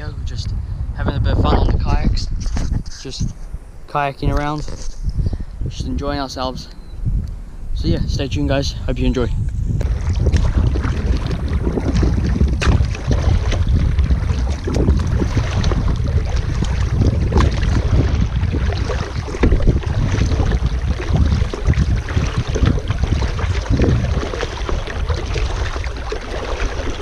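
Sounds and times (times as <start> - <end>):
wind rumble on microphone: 0.0 - 27.0
paddle splashing in water: 9.8 - 27.0.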